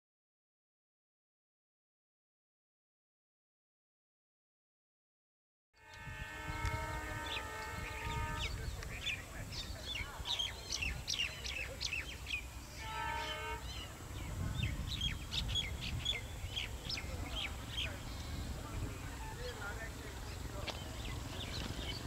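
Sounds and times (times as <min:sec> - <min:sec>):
train horn blasts: 0:05.8 - 0:09.2, 0:12.7 - 0:14.0
birds chirping: 0:05.8 - 0:22.0
low train rumble: 0:05.8 - 0:22.0.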